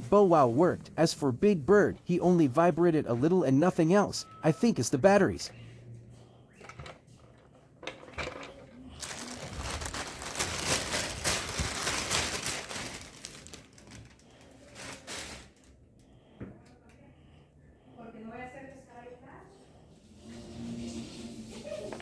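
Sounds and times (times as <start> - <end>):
crinkling and rustling: 6.7 - 15.8.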